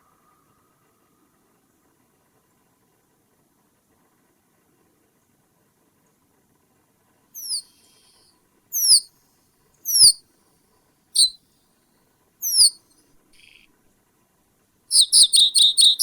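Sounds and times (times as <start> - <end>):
bird calling high notes: 7.4 - 7.7, 8.8 - 9.0, 9.9 - 10.2, 12.4 - 12.8, 14.9 - 16.0.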